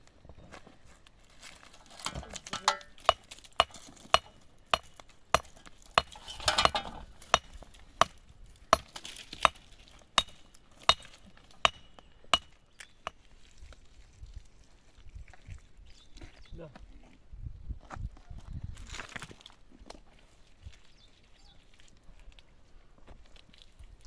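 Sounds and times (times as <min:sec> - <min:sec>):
rustling scrape: 0:00.6 - 0:04.4, 0:06.0 - 0:07.4
hand tool striking: 0:01.6 - 0:13.3.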